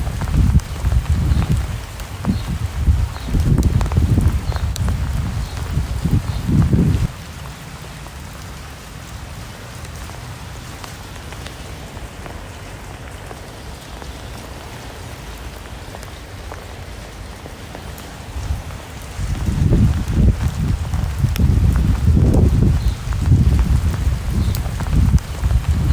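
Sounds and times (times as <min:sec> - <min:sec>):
low rumbling: 0:00.0 - 0:07.2
rain falling: 0:00.0 - 0:25.9.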